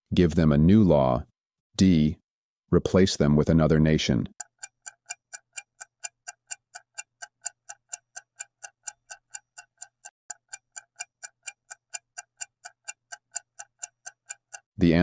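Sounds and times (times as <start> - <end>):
clock ticking: 4.0 - 15.0.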